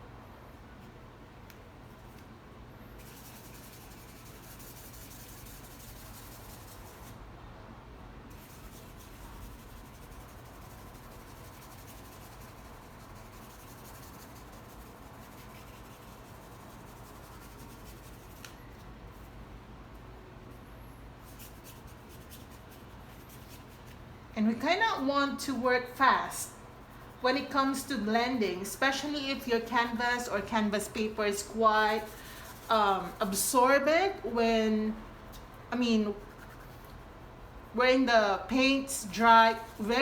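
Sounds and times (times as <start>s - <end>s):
low steady hum: 0.0s - 40.0s
paintbrush rubbing on paper: 3.0s - 7.2s, 8.3s - 19.3s, 21.2s - 24.0s, 25.9s - 40.0s.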